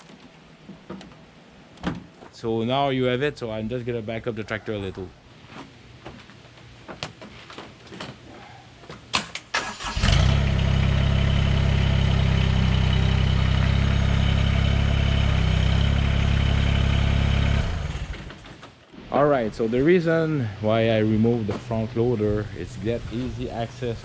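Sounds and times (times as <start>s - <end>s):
tractor diesel engine running: 9.6s - 18.5s.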